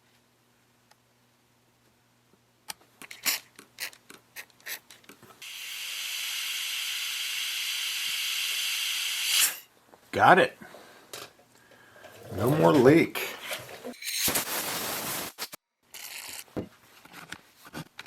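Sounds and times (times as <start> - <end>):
steady high hiss: 14.0 - 15.6.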